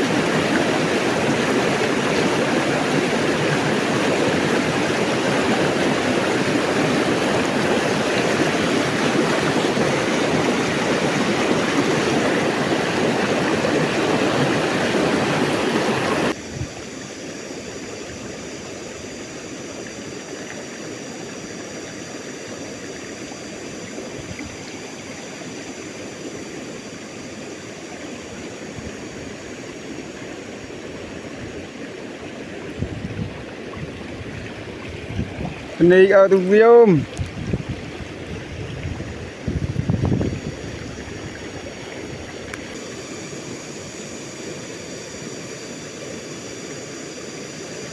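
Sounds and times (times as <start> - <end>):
river water rushing: 0.0 - 16.4, 17.1 - 47.9.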